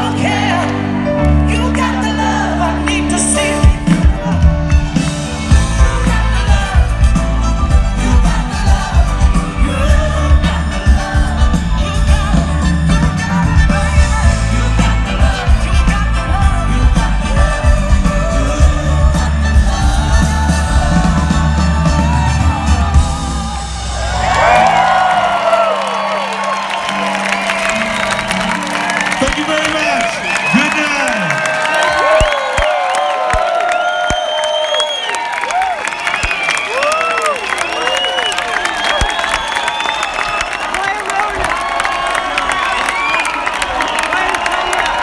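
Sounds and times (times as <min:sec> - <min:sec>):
person singing: 0:00.0 - 0:23.9.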